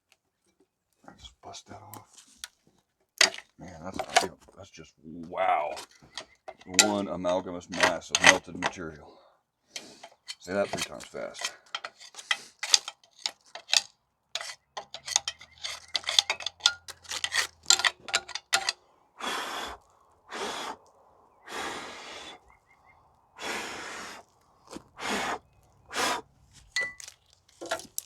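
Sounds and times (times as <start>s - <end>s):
metal tools clinking on metal: 3.2s - 4.3s, 5.8s - 9.0s, 9.8s - 18.8s, 26.6s - 28.0s.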